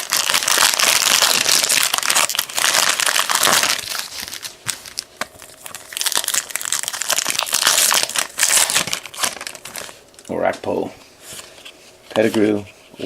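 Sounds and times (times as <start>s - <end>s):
wrappers crinkling and tearing: 0.0s - 10.3s.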